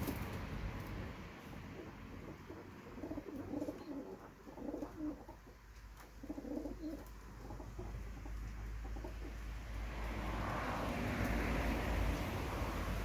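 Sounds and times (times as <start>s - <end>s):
pigeons cooing: 1.7s - 9.4s.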